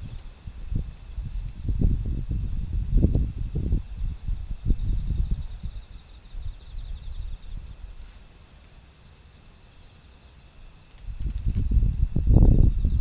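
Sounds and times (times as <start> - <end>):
wind buffeting microphone: 0.0 - 8.0, 11.0 - 13.0
crickets chirping: 0.0 - 13.0.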